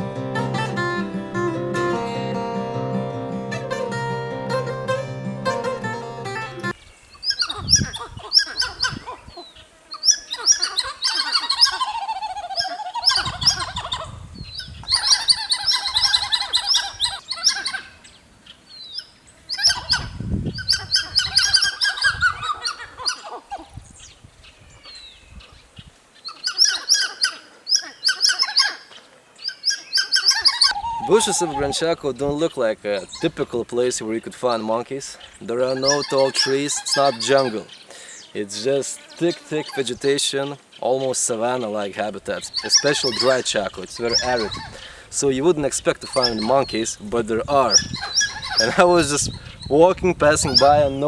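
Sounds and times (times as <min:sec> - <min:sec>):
monkeys chattering alarm calls: 0:07.2 - 0:18.2, 0:18.8 - 0:23.8, 0:26.2 - 0:33.6, 0:34.4 - 0:46.9, 0:47.5 - 0:49.7, 0:50.4 - 0:51.0.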